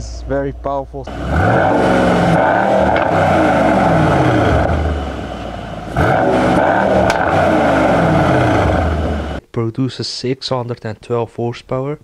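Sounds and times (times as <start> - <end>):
car engine revving: 0.0 - 9.4
sharp exhaust crack: 0.0 - 9.4.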